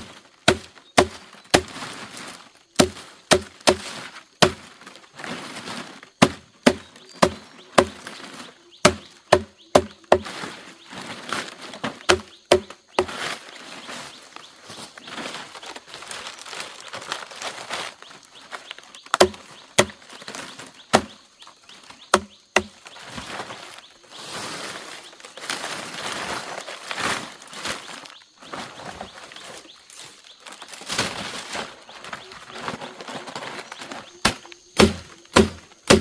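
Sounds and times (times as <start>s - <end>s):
scraping and rustling: 3.8s - 6.2s, 10.2s - 12.1s, 13.0s - 19.1s, 22.9s - 34.2s.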